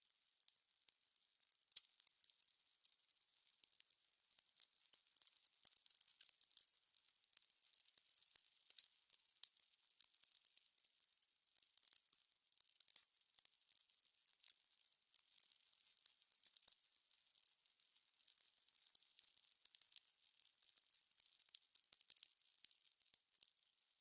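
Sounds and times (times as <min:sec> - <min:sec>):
fire crackling: 0:08.1 - 0:09.5, 0:17.8 - 0:22.2.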